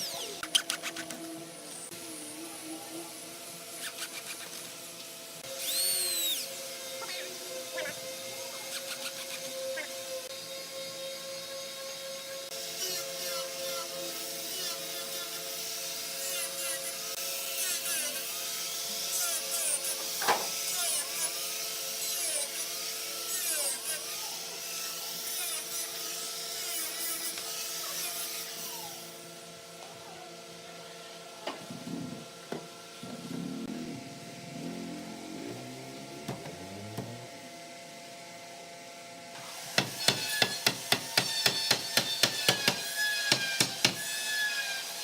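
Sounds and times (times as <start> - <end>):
tool working wood in strokes: 0.0 - 1.9, 39.4 - 45.0
steady hum: 31.4 - 38.4.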